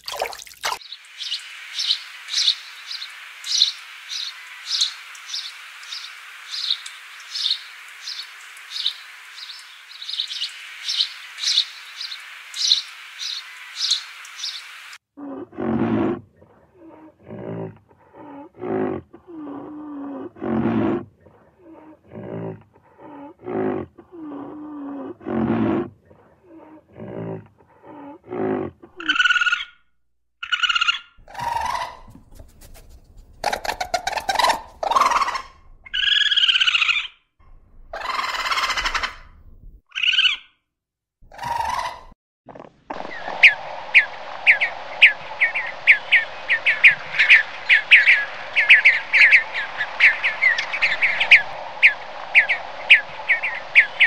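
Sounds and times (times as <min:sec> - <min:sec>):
birds chirping: 0:00.1 - 0:15.0, 0:42.9 - 0:54.0
background hiss: 0:00.8 - 0:15.0, 0:43.0 - 0:54.0.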